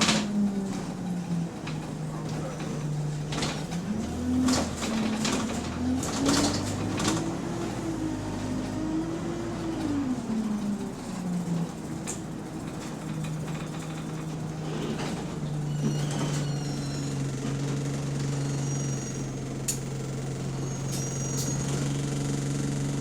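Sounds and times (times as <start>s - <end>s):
diesel engine idling: 0.0s - 23.0s
clicks and high squeaks: 14.7s - 19.8s, 20.6s - 21.9s.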